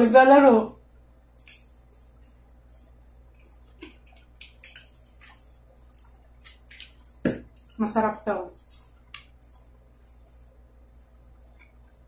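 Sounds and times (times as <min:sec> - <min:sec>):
people chewing: 0:01.4 - 0:07.8.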